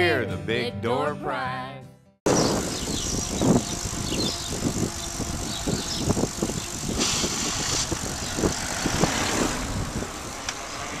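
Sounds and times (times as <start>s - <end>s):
wind on microphone: 2.3s - 11.0s.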